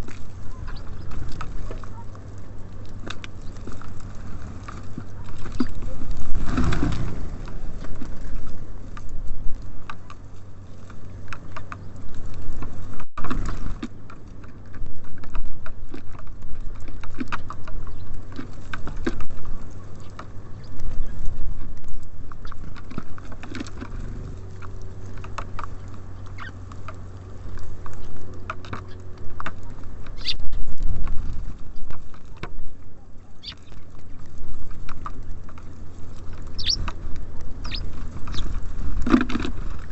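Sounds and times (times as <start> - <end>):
birds pecking at feeder: 0.0 - 39.9
seed rustling and scratching: 0.0 - 39.9
steady low rumble: 0.0 - 39.9.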